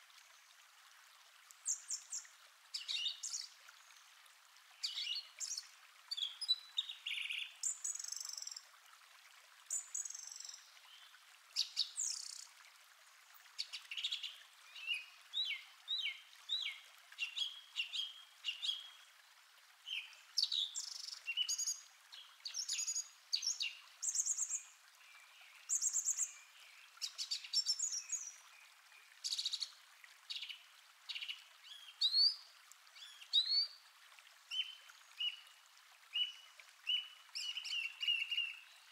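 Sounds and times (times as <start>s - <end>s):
songbirds singing: 4.8s - 8.6s, 13.6s - 19.0s, 30.3s - 33.8s, 34.5s - 38.9s.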